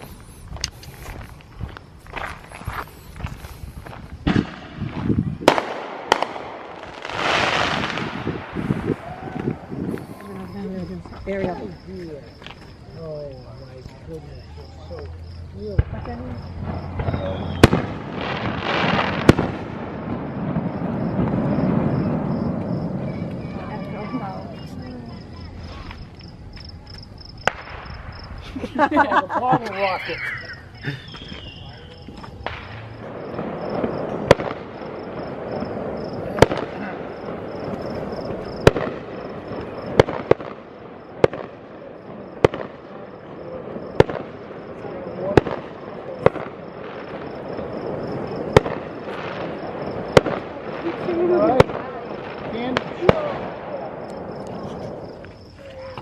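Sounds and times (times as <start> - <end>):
fireworks banging: 0.0 - 56.0
low rumble: 15.0 - 18.7.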